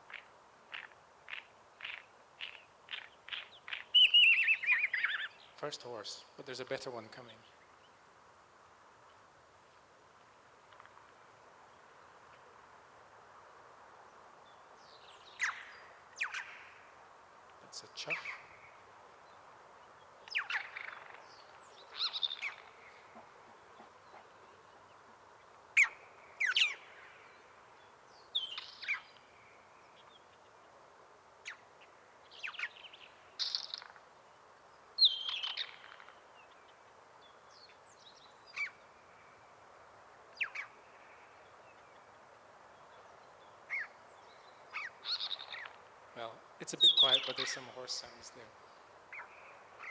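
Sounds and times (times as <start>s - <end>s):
bird singing with mimicry: 2.9s - 5.4s, 35.0s - 35.9s, 46.6s - 48.3s.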